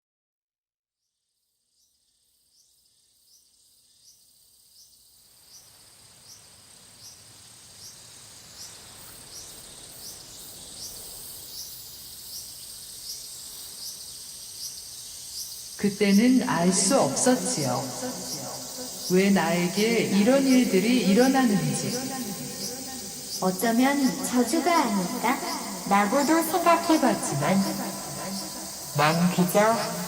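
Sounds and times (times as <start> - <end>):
insect chirping: 1.0 - 30.0
insects whining: 1.8 - 30.0.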